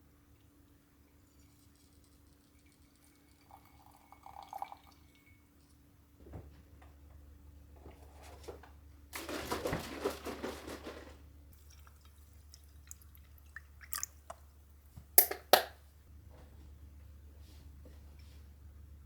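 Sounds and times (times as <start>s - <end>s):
water pouring: 1.3s - 5.4s, 11.5s - 14.5s.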